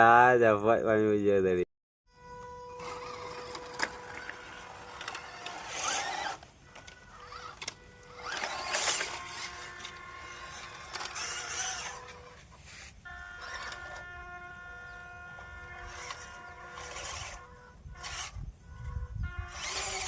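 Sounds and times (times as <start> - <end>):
steady background hum: 2.3 - 20.0
toy car electric motor whirring: 2.5 - 20.0.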